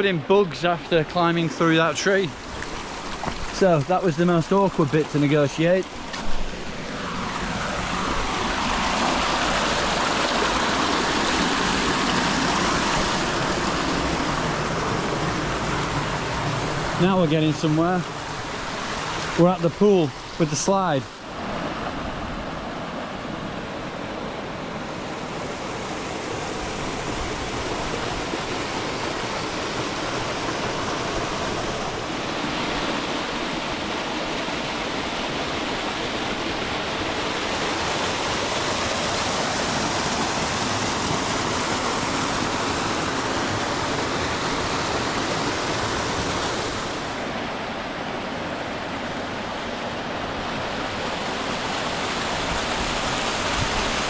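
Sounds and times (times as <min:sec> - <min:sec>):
stream pouring into rock pool: 0:00.0 - 0:21.0.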